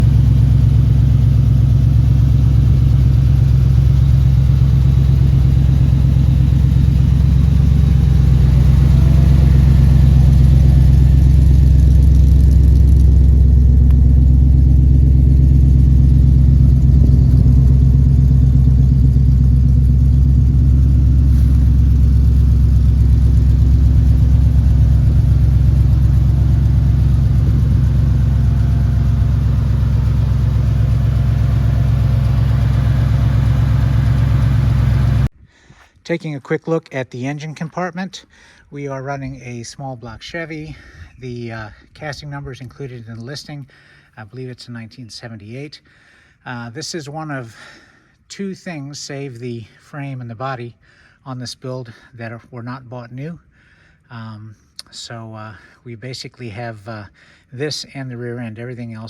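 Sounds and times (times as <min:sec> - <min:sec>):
engine running loudly: 0:00.0 - 0:35.3.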